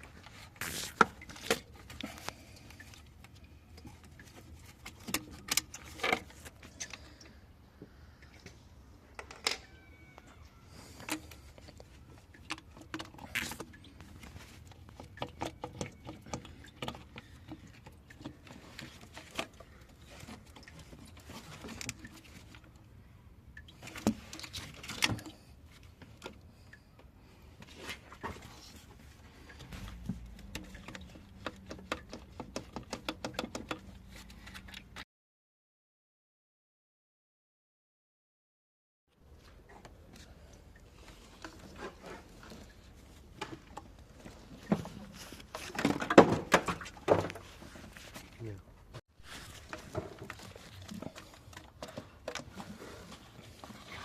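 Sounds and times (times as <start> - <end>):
hand tools clicking and knocking: 30.2 - 33.9.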